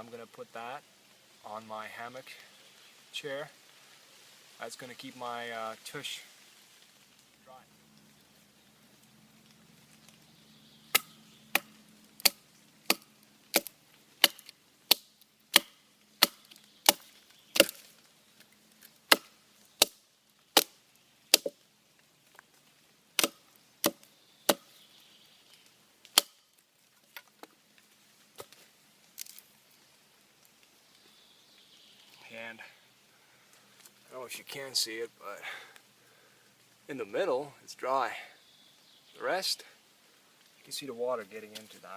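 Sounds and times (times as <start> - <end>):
knife chopping wood: 10.9 - 17.9, 19.1 - 20.0, 20.6 - 21.6, 23.2 - 24.7, 26.1 - 26.4.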